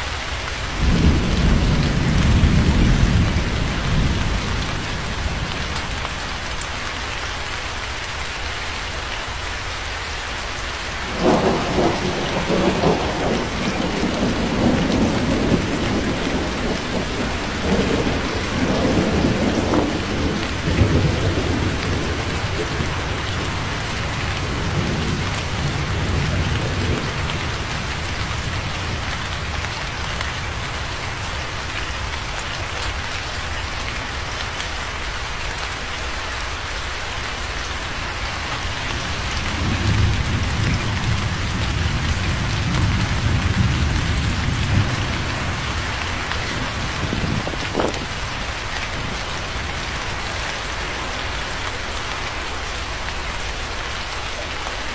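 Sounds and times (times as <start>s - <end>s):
heavy rain hissing: 0.0s - 54.9s
thunder rumbling: 0.8s - 6.4s, 11.0s - 30.8s, 38.6s - 51.7s.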